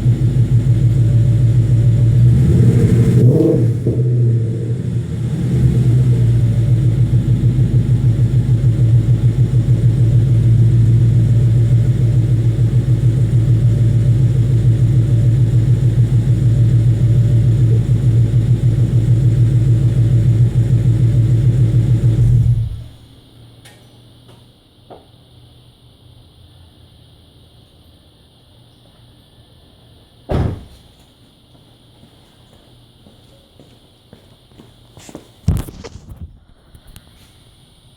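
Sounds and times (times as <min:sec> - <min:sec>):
car engine idling: 0:00.0 - 0:23.2.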